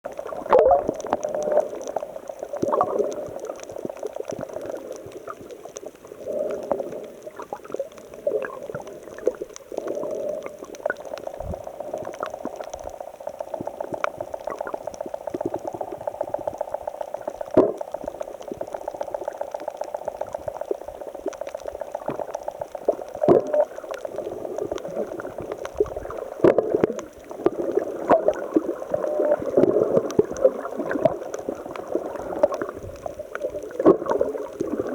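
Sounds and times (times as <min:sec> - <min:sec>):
seawater surging among rocks: 0:00.2 - 0:03.6.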